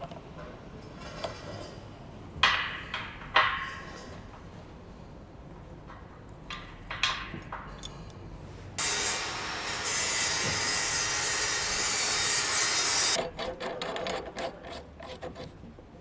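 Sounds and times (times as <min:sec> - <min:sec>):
cutting tool rasping: 0:08.8 - 0:15.5.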